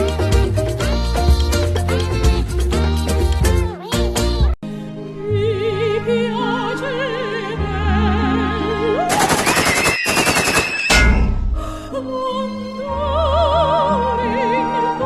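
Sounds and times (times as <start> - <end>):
sustained music: 0.0 - 15.0
operatic singing with vibrato: 5.1 - 10.2, 11.5 - 15.0
rapid rattle of gunshots: 9.1 - 11.0.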